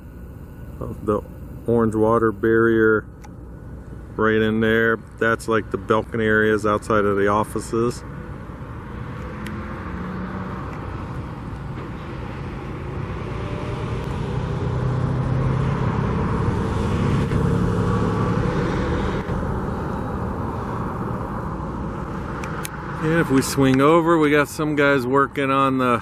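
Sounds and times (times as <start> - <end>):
vehicle passing close by: 8.3 - 24.5.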